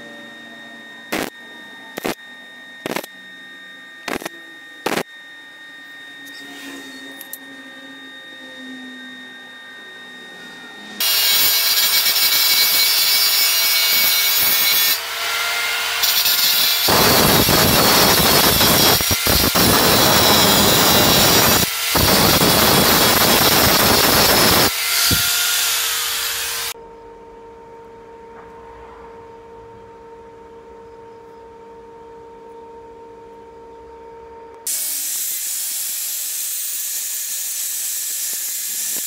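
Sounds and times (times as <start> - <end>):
power tool cutting metal: 1.1 - 1.3, 2.0 - 2.2, 2.8 - 3.1, 4.1 - 5.1, 10.8 - 26.8, 34.7 - 39.0.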